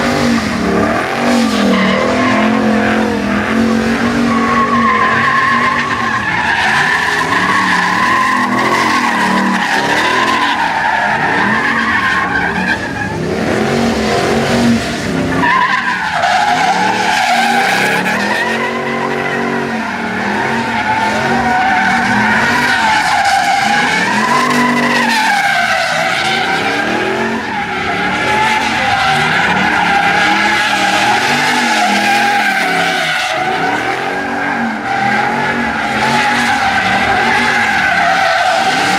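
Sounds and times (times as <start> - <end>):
engine revving: 0.0 - 15.4, 25.9 - 38.9
truck tyres squealing: 0.0 - 38.9.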